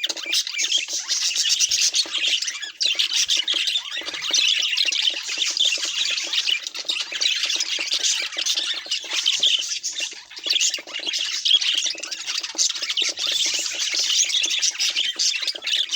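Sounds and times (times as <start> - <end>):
budgerigars chattering: 0.0 - 15.9.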